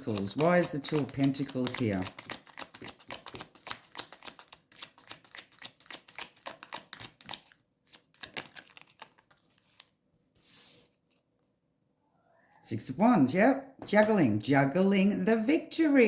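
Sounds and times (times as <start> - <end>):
cards being shuffled: 0.0 - 11.2
cards tapped and laid down: 0.1 - 4.4.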